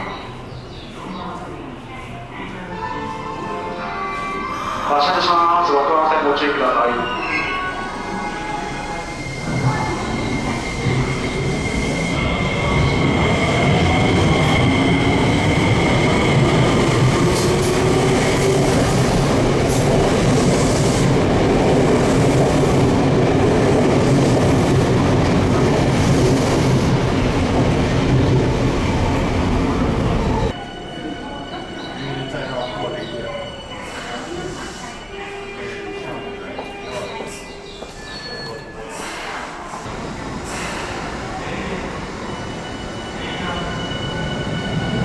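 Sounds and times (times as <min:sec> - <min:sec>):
train rumble on rails: 0:07.6 - 0:31.8, 0:39.4 - 0:45.0.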